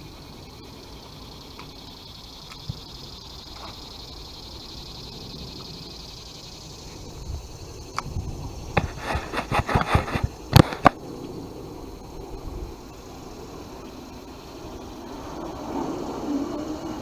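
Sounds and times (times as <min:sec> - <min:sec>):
irregular clicks and knocks: 0:08.8 - 0:11.0.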